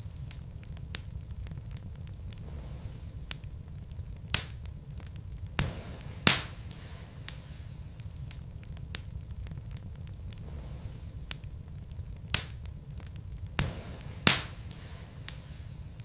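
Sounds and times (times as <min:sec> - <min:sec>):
sharp pops from fire: 0:00.0 - 0:16.0
wood fire crackling: 0:00.0 - 0:16.0.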